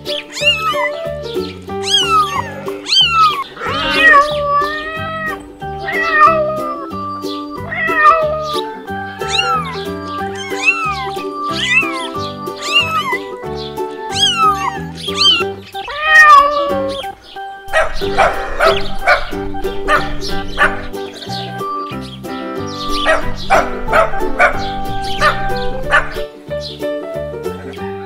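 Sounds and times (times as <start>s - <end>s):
cats meowing: 0.0s - 21.4s, 22.8s - 26.3s
background music: 0.0s - 28.0s.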